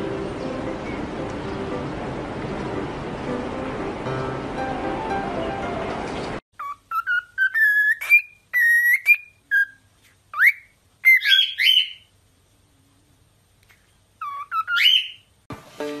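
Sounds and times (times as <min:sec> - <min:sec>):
background music: 0:00.0 - 0:06.2, 0:15.5 - 0:16.0
cockatiel whistling: 0:06.6 - 0:12.1, 0:14.2 - 0:15.2.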